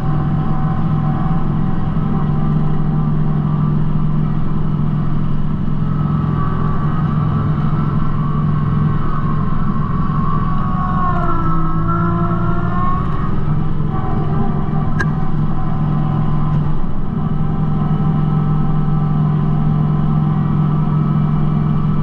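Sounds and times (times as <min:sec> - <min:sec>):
high whine: 0:00.0 - 0:22.0
tractor diesel engine running: 0:00.0 - 0:22.0.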